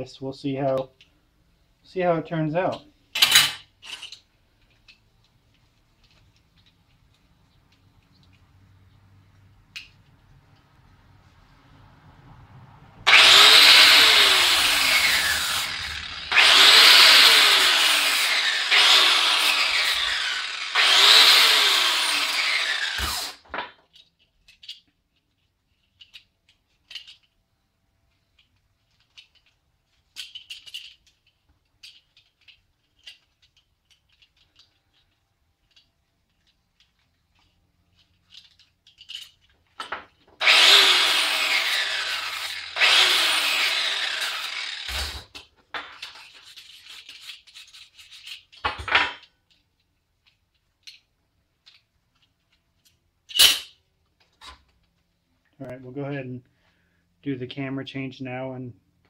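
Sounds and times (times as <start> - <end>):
metal parts clicking: 3.1 - 8.6, 18.1 - 53.8
power tool spinning down: 13.0 - 23.4, 40.4 - 45.3.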